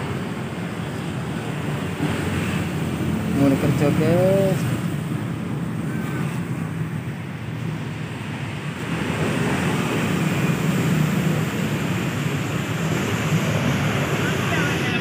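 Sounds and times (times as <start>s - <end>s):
passing traffic rumble: 0.0s - 15.0s.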